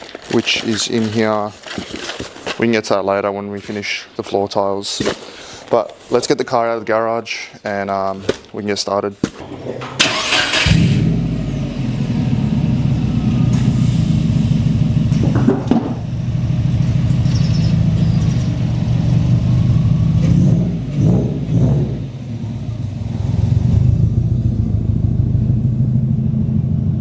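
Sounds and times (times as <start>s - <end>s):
car engine starting and running: 9.4s - 27.0s.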